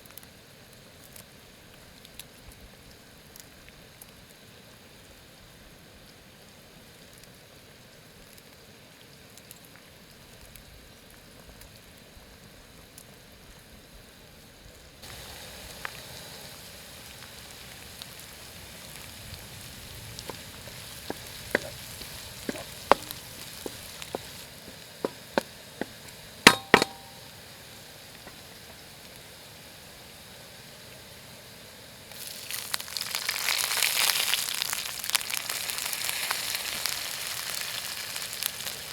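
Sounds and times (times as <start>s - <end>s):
steady hiss: 11.8s - 38.9s
food sizzling in hot oil: 15.0s - 38.9s
cookware clicking and knocking: 26.5s - 27.2s.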